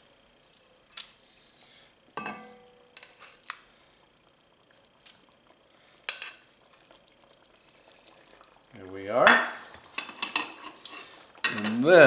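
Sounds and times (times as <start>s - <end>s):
wet drips: 0.4s - 1.9s, 4.6s - 8.8s
metal utensil clinking on skillet: 2.2s - 3.4s, 6.1s - 6.4s, 9.2s - 11.9s.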